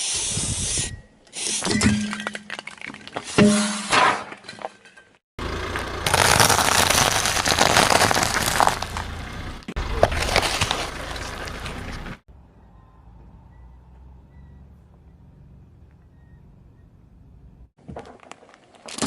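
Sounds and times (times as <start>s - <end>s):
car engine rumble: 5.4s - 17.8s
tyres crushing objects: 6.1s - 11.9s.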